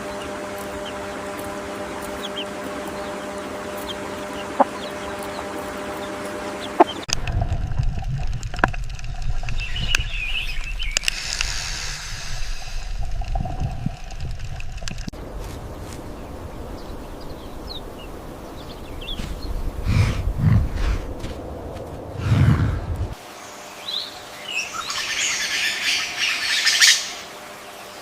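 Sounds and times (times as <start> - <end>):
higher calls: 0.0 - 7.1
low rumble: 0.0 - 23.2
steady hum: 0.0 - 28.0
fowl clucking: 2.0 - 7.0.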